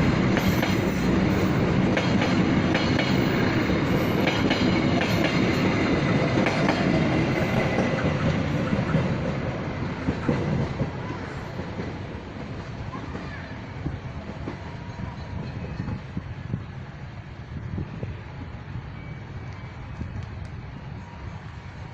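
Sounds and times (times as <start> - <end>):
train wheels clattering over rail joints: 0.2 - 11.0.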